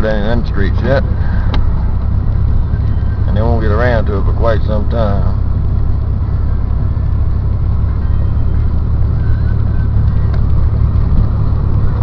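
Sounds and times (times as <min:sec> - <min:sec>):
car engine and road drone: 0:00.0 - 0:12.0.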